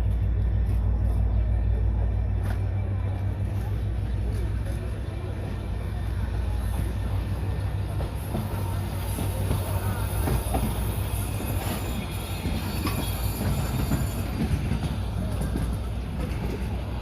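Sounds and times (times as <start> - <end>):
train running on rails: 0.0 - 17.0.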